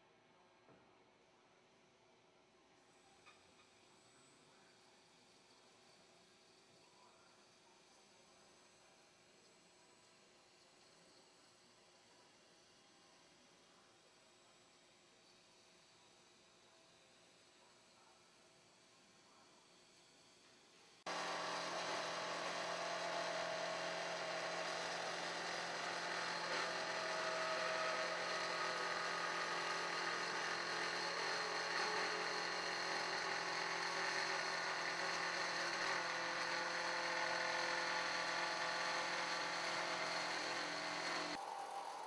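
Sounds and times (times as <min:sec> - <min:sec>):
sawing machine whirring: 0:21.1 - 0:42.0.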